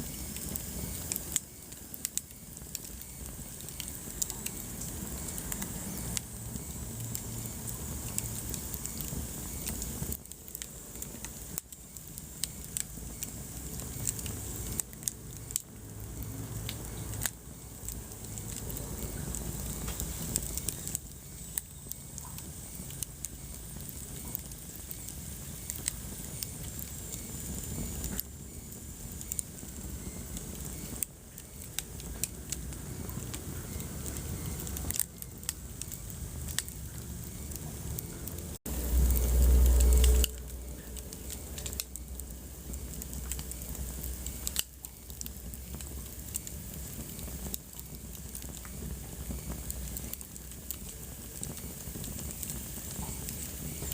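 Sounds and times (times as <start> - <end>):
wood fire crackling: 0.0 - 53.9
loud low rumble: 37.0 - 42.7.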